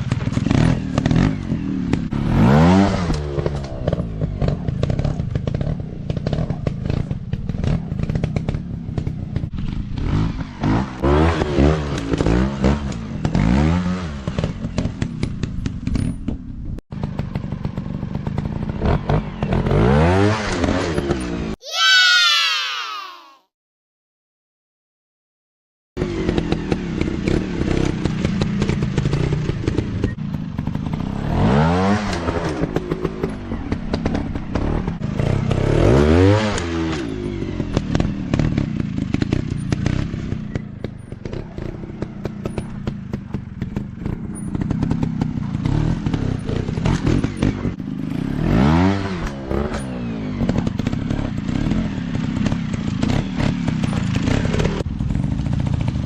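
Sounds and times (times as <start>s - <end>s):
dirt bike engines revving: 26.0s - 55.9s.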